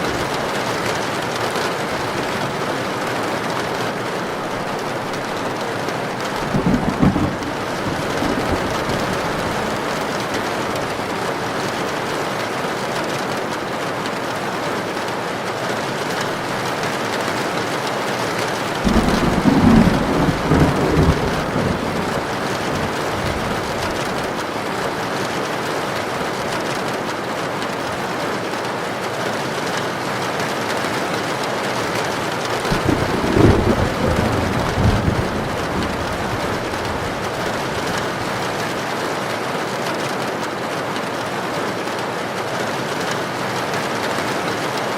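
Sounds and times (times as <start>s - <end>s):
heavy rain: 0.0s - 44.9s
low thunder rumbles: 2.1s - 11.3s, 18.7s - 24.5s, 32.6s - 38.6s.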